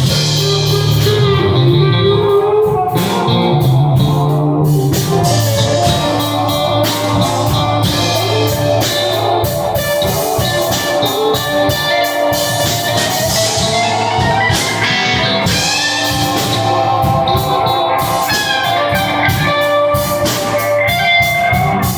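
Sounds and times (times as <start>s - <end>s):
drum kit beat: 0.0s - 21.9s
guitar playing: 0.0s - 21.9s.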